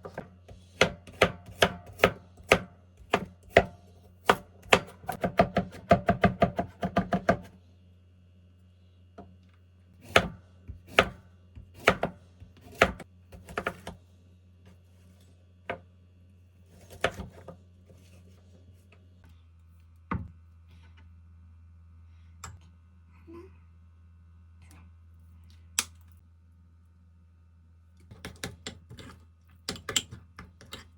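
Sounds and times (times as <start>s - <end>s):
knife chopping on cutting board: 0.0s - 7.5s, 10.0s - 14.0s, 16.7s - 17.6s.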